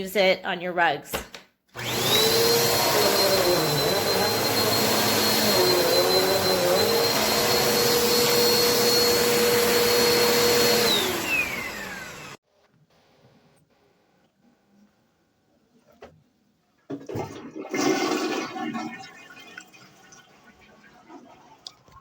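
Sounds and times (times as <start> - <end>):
vacuum cleaner running: 1.8 - 12.4.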